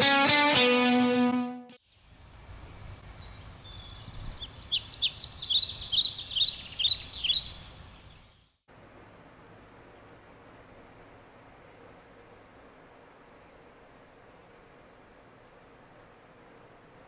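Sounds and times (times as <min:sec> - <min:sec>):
distorted electric guitar note: 0:00.0 - 0:01.8
birds chirping: 0:01.8 - 0:08.6.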